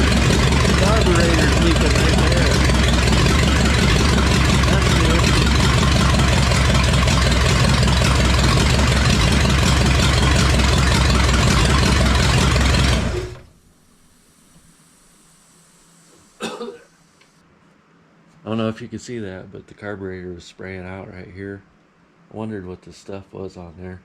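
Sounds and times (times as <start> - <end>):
engine running: 0.0 - 16.2.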